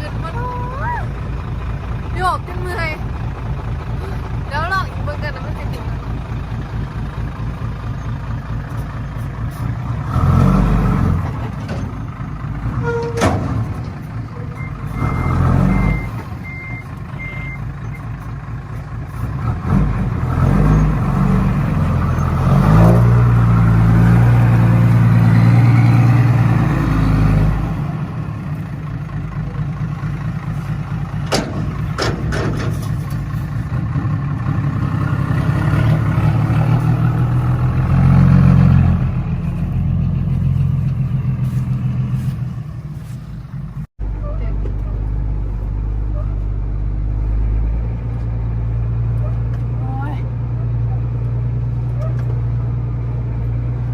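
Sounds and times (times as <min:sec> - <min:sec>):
heavy truck engine under load: 0:00.0 - 0:53.9.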